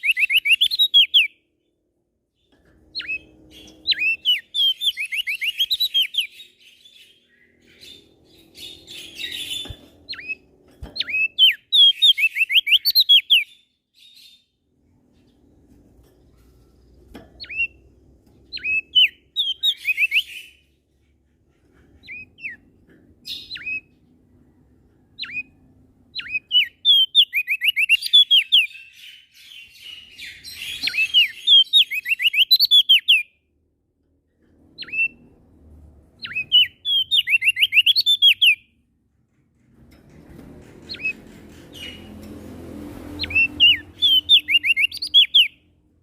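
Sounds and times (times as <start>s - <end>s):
songbird whistling: 0.0s - 1.4s, 3.0s - 10.4s, 11.0s - 14.4s, 18.5s - 20.6s, 23.2s - 23.9s, 25.2s - 33.3s, 34.8s - 35.3s, 36.2s - 38.7s, 43.2s - 45.6s.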